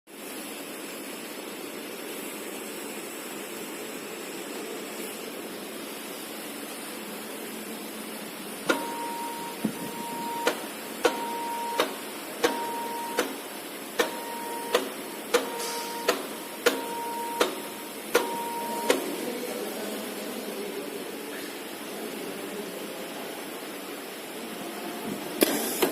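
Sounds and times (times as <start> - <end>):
steady mechanical hum: 0.1 - 25.9
short steady tone: 8.7 - 13.4, 14.0 - 19.1.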